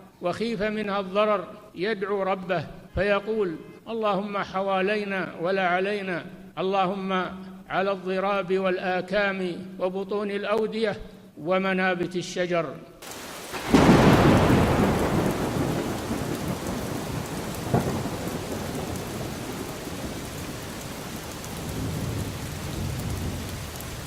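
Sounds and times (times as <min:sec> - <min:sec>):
heavy pouring rain: 0:13.0 - 0:24.0
thunderclap rumbling: 0:13.0 - 0:24.0
low rumble of thunder: 0:13.1 - 0:24.0.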